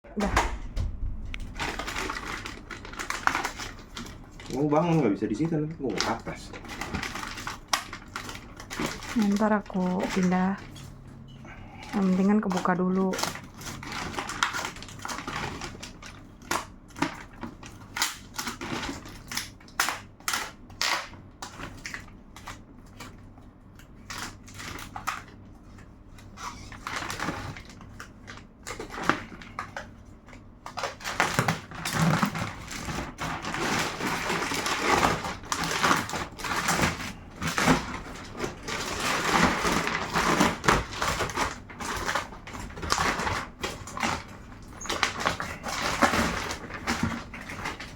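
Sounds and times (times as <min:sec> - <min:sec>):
plastic packaging crinkling: 0:00.2 - 0:11.0, 0:11.7 - 0:47.9
packaging clicks: 0:01.2 - 0:10.8, 0:26.4 - 0:47.9.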